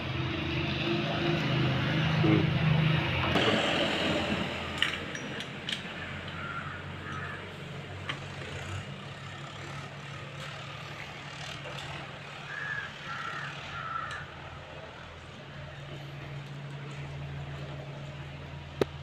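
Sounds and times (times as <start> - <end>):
crow cawing: 6.0 - 7.6, 12.4 - 14.4.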